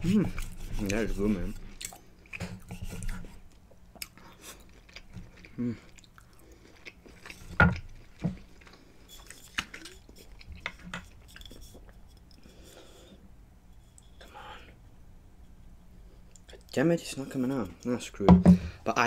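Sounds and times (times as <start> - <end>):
chewing steak: 1.6 - 12.5.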